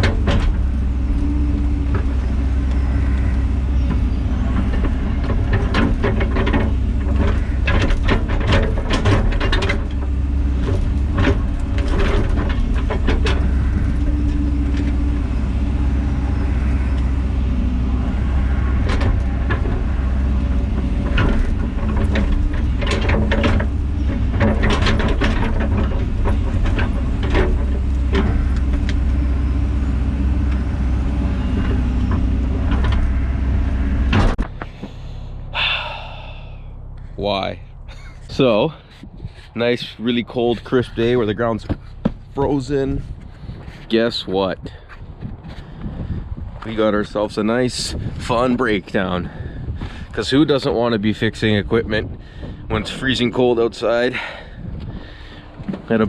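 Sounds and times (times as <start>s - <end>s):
machine clanks and knocks: 0.0s - 2.2s, 3.8s - 15.4s, 18.4s - 29.4s, 30.3s - 34.6s
diesel engine running: 0.0s - 56.0s.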